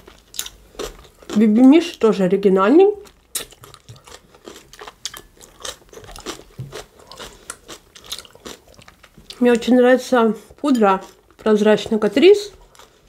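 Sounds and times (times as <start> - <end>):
chewing salad wet crunches: 0.0 - 2.0, 3.0 - 9.7.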